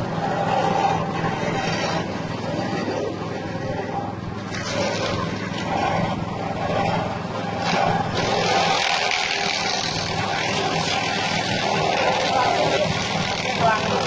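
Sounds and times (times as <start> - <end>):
grinding machine engine running: 0.0 - 14.0.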